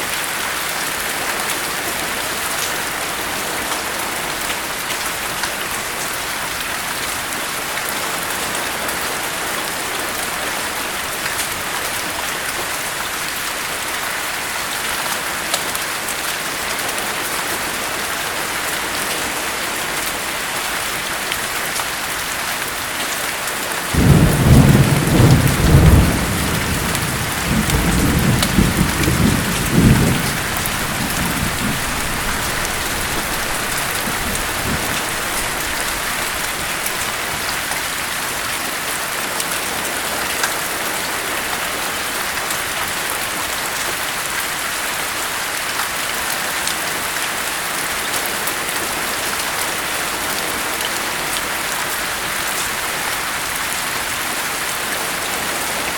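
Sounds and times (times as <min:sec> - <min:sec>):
heavy rain: 0:00.0 - 0:55.9
rolling thunder rumble: 0:24.0 - 0:37.5.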